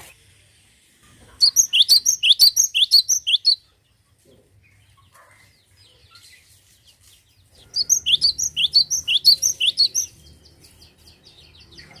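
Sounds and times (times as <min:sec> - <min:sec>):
tit chirping: 0:01.4 - 0:03.6, 0:07.8 - 0:10.2.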